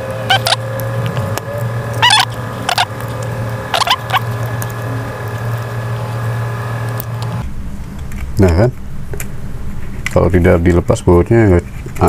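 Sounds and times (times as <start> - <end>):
low background hum: 0.0 - 12.0
bird chirping: 0.3 - 0.6, 1.5 - 2.9, 3.7 - 5.0.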